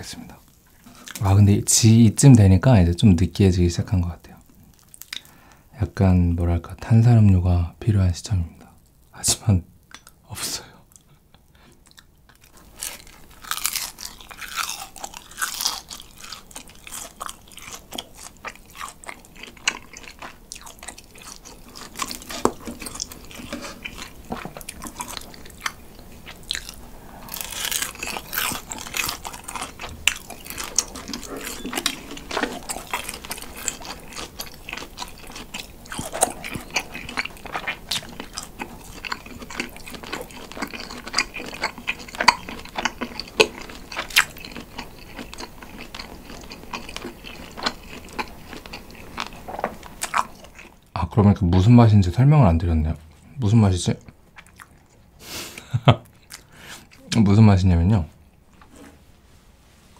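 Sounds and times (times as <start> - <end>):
chewing crunchy grilled cheese: 0.3 - 1.4, 4.3 - 5.5, 10.9 - 50.9, 53.9 - 57.1
cheese squeaking against teeth: 31.1 - 32.2.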